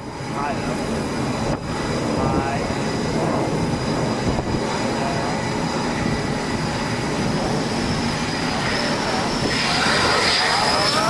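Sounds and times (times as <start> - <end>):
engine and wind rumble: 0.0 - 11.0
thin high whine: 7.8 - 11.0.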